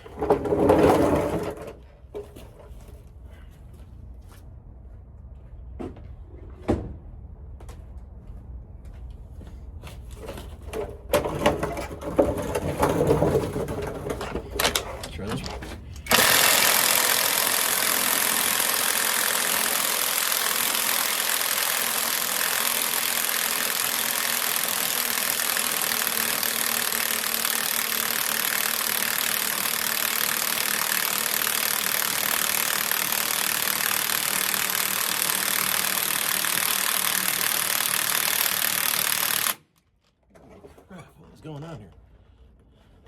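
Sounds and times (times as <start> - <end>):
impact wrench hammering: 14.6 - 39.6.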